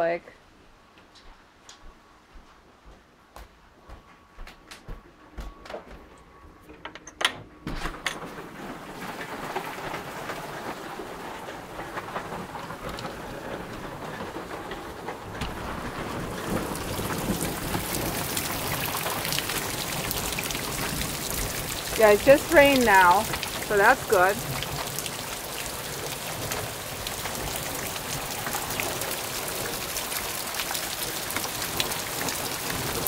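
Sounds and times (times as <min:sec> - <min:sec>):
heavy rain downpour: 0:08.2 - 0:33.0.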